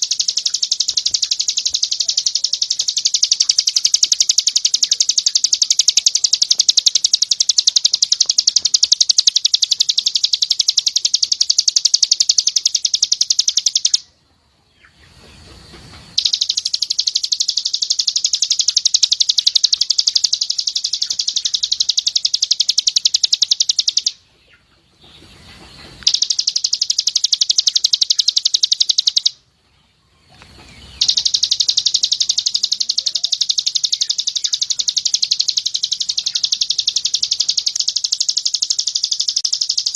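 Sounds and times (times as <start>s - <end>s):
bird singing fast high notes: 0.0s - 14.0s, 16.2s - 24.2s, 30.8s - 39.9s.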